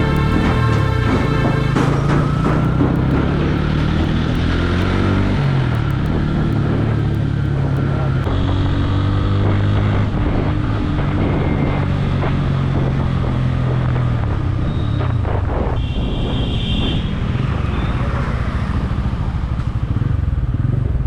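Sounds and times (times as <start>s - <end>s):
motorcycle engine running: 0.0s - 15.9s, 16.6s - 21.0s
wind buffeting microphone: 0.0s - 21.0s.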